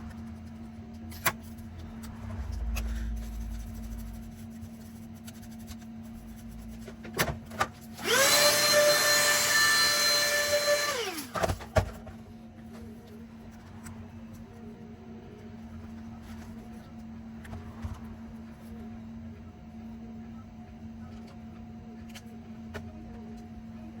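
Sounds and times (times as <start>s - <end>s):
electric screwdriver motor whine: 8.0s - 11.4s.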